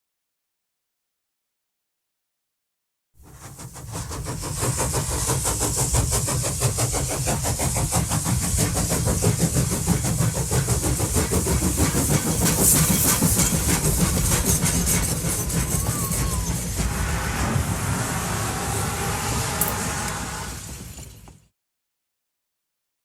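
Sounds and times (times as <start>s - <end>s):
train running: 3.2s - 21.5s.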